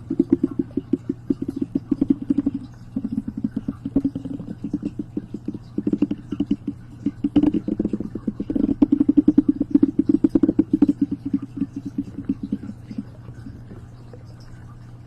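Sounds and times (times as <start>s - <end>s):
soft rapid tapping: 0.0s - 15.0s
steady low hum: 0.0s - 15.0s.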